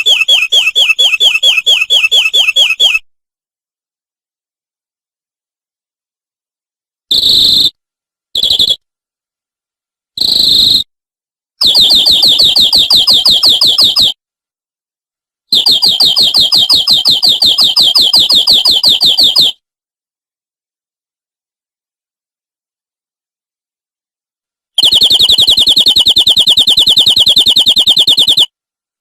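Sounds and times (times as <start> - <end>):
canary singing: 0.0 - 3.1, 8.4 - 8.8, 11.6 - 14.2, 15.5 - 19.6, 24.8 - 28.5.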